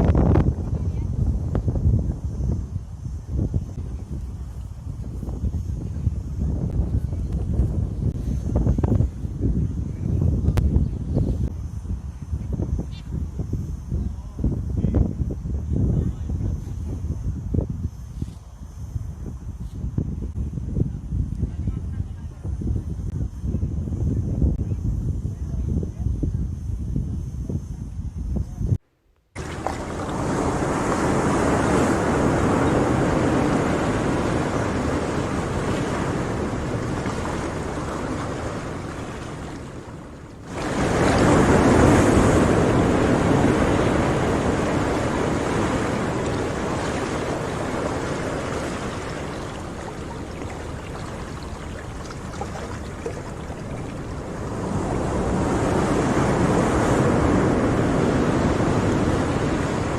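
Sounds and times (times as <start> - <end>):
sea surf breaking: 29.4 - 59.9.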